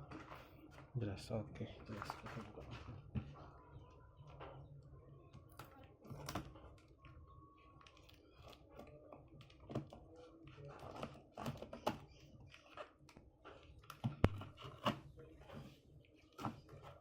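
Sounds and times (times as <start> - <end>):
packaging clicks and crinkles: 5.4 - 15.0.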